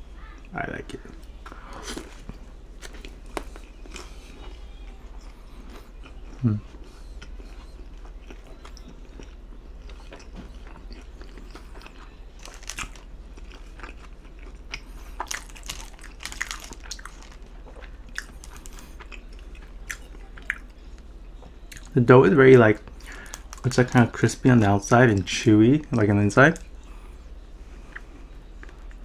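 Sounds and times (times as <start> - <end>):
chewing food: 1.1 - 21.9
person humming: 6.4 - 6.7.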